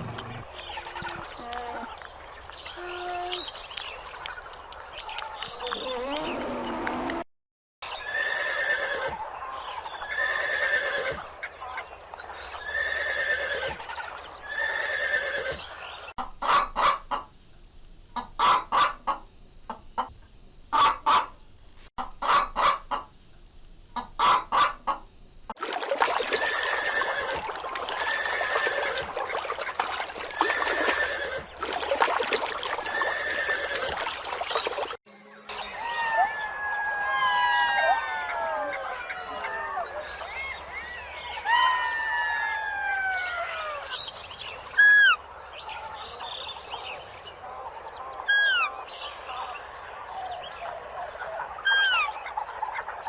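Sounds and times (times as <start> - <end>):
birds calling: 25.6 - 35.0, 43.9 - 45.5, 48.2 - 49.2, 51.5 - 52.6.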